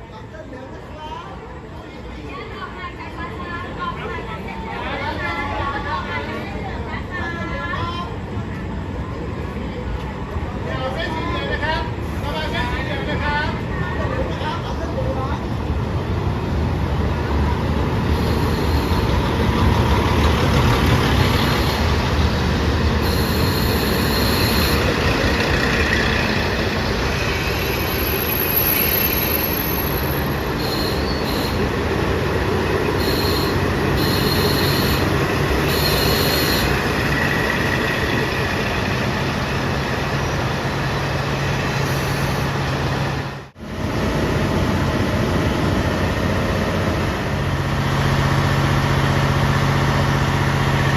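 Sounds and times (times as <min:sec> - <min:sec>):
train wheels rumbling on rails: 0:02.0 - 0:50.9
high-pitched wheel squeals: 0:18.2 - 0:19.3, 0:23.0 - 0:25.9, 0:27.3 - 0:31.7, 0:33.0 - 0:38.1.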